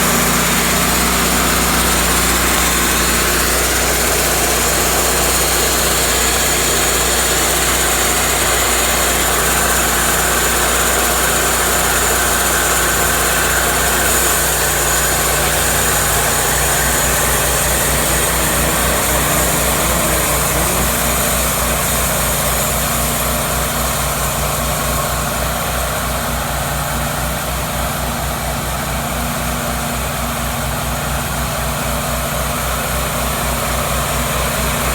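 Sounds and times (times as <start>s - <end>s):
sawmill engine idling: 0.0s - 34.9s
low fast pulsing: 1.2s - 22.6s.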